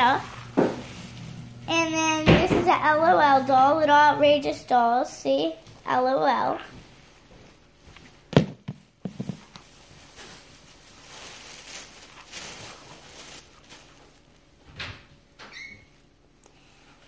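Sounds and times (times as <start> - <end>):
packaging rustling: 9.1 - 14.6.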